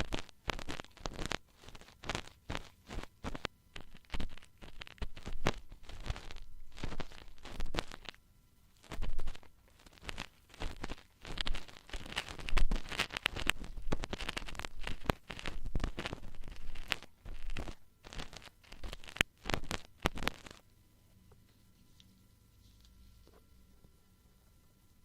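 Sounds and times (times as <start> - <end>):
ear-cleaning tools scratching: 0.0 - 8.2, 8.8 - 20.6.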